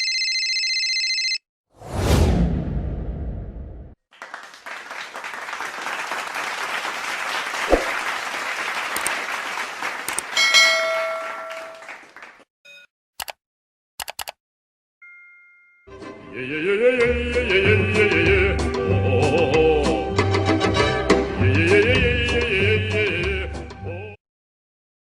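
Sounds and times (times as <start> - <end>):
crowd applause: 4.1 - 12.4
bell ding: 10.4 - 11.9, 15.0 - 15.9
sharp clicks: 14.0 - 14.4.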